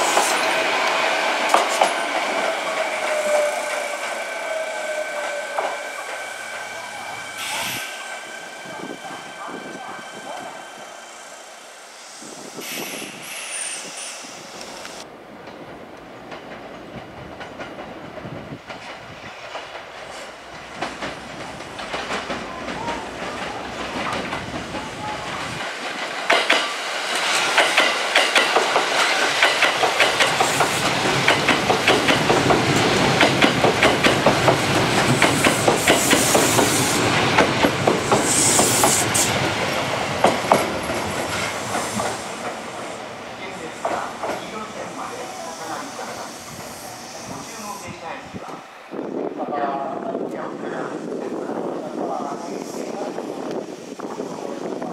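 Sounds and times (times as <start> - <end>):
train wheels clacking over rail joints: 0.0 - 4.2, 16.3 - 42.9.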